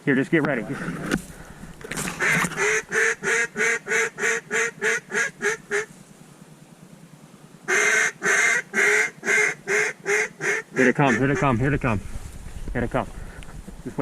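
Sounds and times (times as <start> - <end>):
duck call quacks: 2.2 - 5.9, 7.7 - 11.6.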